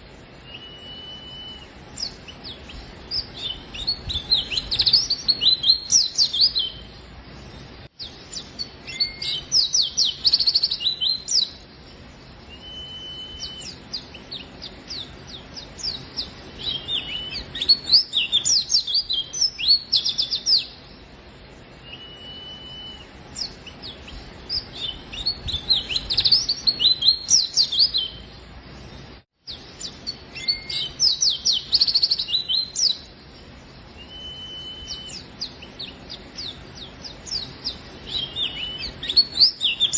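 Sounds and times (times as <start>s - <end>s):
bird twittering chirps: 0.0s - 21.1s, 21.7s - 28.5s, 29.5s - 39.9s
short whistled bird notes: 0.4s - 2.1s, 12.5s - 13.8s, 21.8s - 23.2s, 34.0s - 35.3s.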